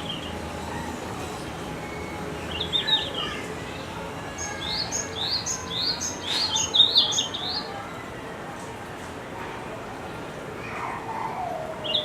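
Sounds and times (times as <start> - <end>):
bird singing: 1.8 - 7.7.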